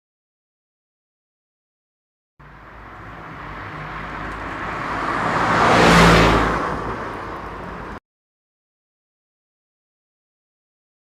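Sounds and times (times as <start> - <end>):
vehicle passing by: 2.4 - 8.0.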